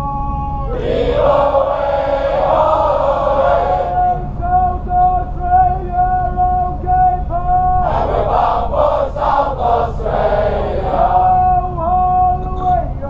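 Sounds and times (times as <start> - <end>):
group of voices singing: 0.7 - 4.9, 7.8 - 11.7.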